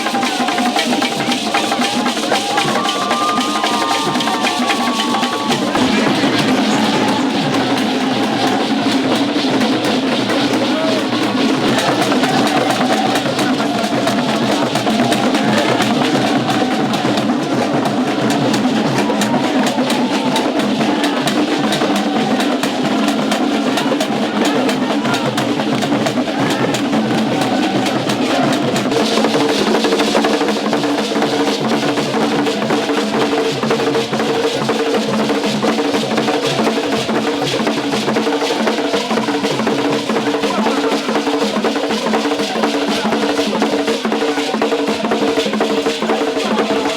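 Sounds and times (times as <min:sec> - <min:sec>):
drum and percussion music: 0:00.0 - 0:46.9
steady held tones: 0:02.9 - 0:14.8.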